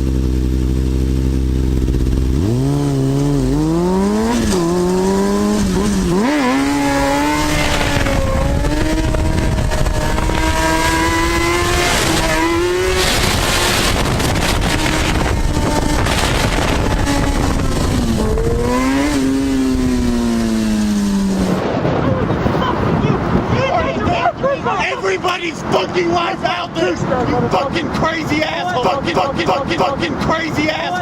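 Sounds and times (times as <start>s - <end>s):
motorcycle engine revving: 0.0s - 22.0s
wind and road noise: 0.0s - 31.0s.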